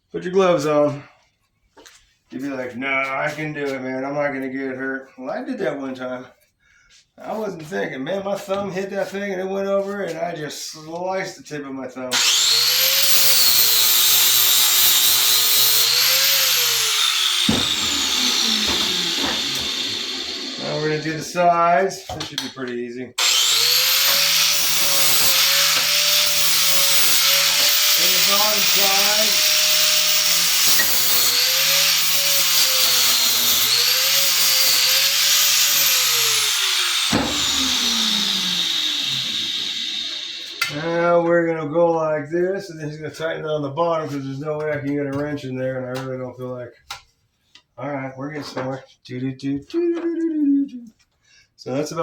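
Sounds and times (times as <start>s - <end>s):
angle grinder grinding steel: 12.1s - 21.4s, 23.2s - 41.0s.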